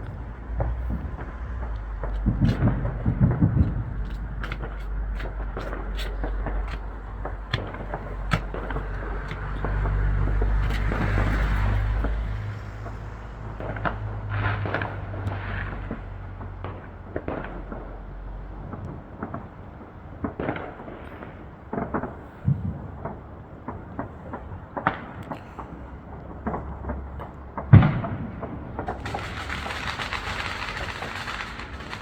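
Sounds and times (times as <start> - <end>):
fireworks cracking and popping: 0.0 - 25.5, 26.4 - 32.0
fireworks low rumble: 0.0 - 32.0
fireworks heavy bang: 27.8 - 32.0.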